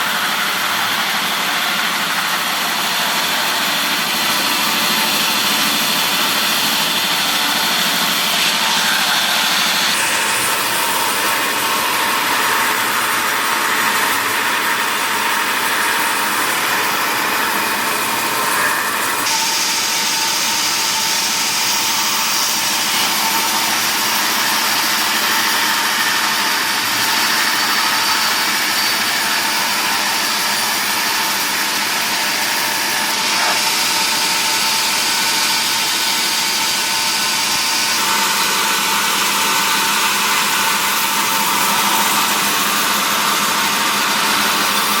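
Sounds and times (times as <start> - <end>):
wood-processing machinery running: 0.0 - 45.0.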